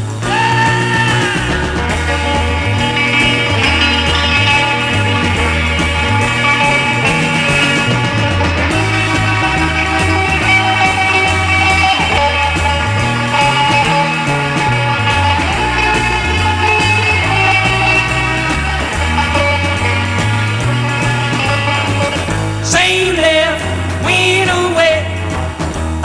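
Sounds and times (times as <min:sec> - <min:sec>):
bass line: 0:00.0 - 0:26.0
rock and roll band playing: 0:00.0 - 0:26.0
lead vocal singing: 0:00.2 - 0:02.5, 0:22.6 - 0:25.7.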